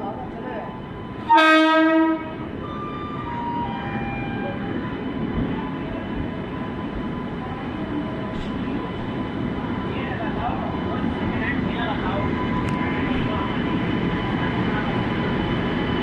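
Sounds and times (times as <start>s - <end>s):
train rumbling: 0.0s - 16.0s
train horn blast: 1.2s - 4.5s.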